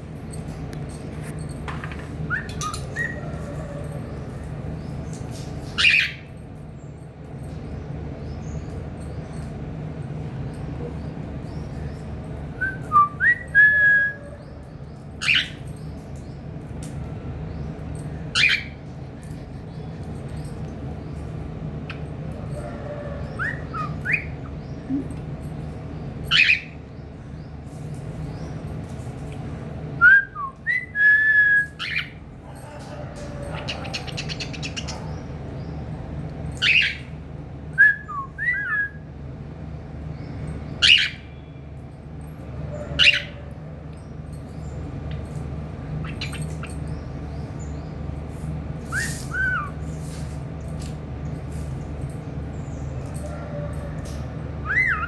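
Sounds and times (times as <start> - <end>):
bird whistling: 37.8 - 39.0, 48.9 - 49.8, 54.6 - 55.0.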